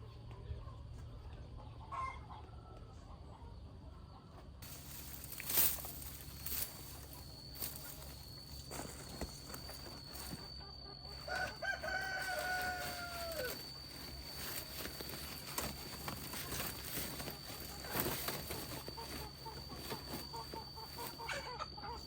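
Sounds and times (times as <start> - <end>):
faint steady high tone: 4.6 - 22.0
rooster crowing: 9.0 - 22.0.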